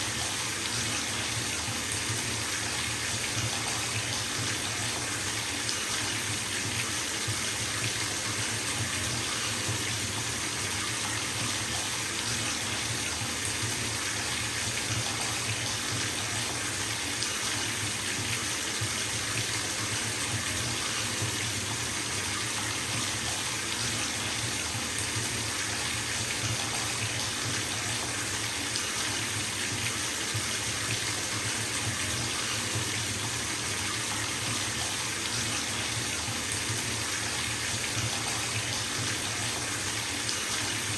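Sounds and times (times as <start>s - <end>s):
tap water filling bathtub: 0.0s - 40.9s.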